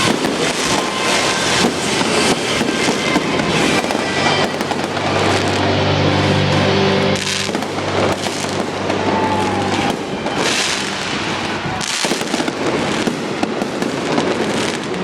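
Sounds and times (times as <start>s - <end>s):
fireworks bursting and crackling: 0.0s - 15.0s
music over sound system: 1.1s - 9.1s.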